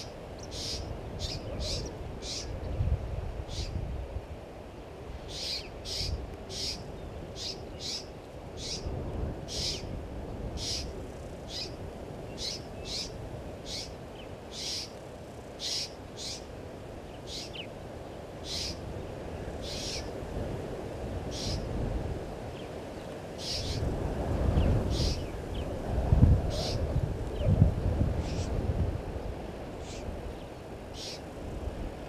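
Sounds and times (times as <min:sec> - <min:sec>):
bird giving sharp calls: 0:00.0 - 0:02.5, 0:05.3 - 0:06.8, 0:09.5 - 0:09.9, 0:10.6 - 0:10.9, 0:14.5 - 0:15.0, 0:15.6 - 0:16.5, 0:18.4 - 0:18.8, 0:19.6 - 0:20.1, 0:21.3 - 0:21.7, 0:23.4 - 0:23.8, 0:31.0 - 0:31.2.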